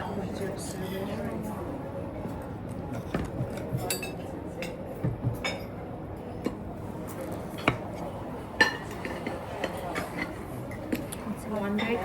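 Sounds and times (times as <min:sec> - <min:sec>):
murmur of voices: 0:00.0 - 0:12.0
cutlery clinking against plates: 0:02.8 - 0:12.0.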